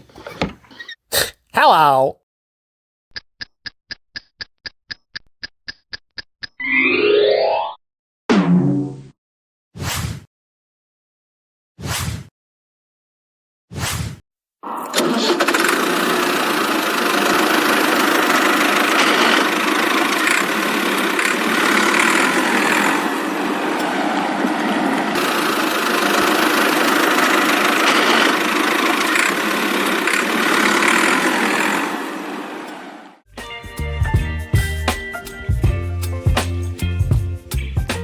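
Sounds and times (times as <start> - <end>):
small motor running steadily: 15.4 - 32.7.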